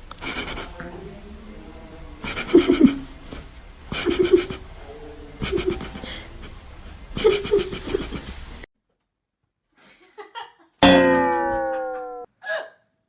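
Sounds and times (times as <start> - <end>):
person laughing: 0.2 - 0.8, 2.3 - 3.0, 4.0 - 4.6, 5.4 - 6.6, 7.2 - 8.4.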